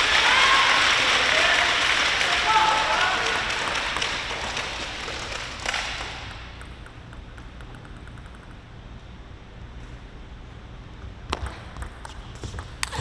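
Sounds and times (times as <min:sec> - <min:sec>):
crowd applause: 0:00.0 - 0:06.1.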